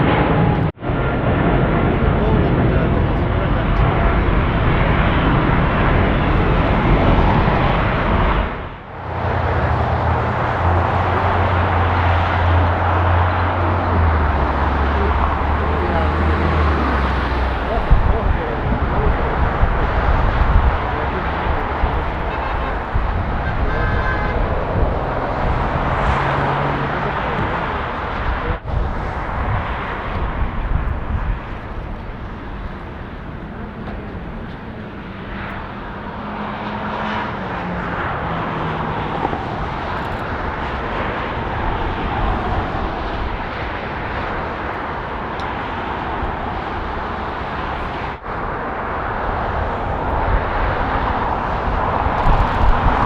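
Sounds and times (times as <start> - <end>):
jet engines roaring: 0.0 - 53.0.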